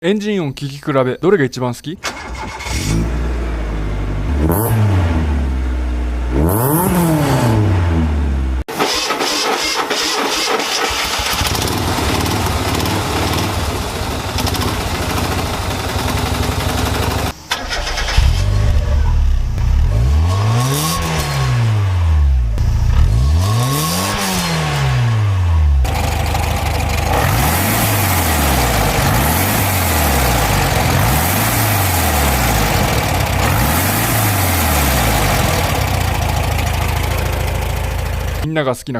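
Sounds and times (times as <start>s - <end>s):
car engine blipping: 2.0s - 24.3s, 25.5s - 38.5s
car engine revving: 2.1s - 38.4s
car engine running: 11.2s - 23.7s, 24.4s - 38.5s.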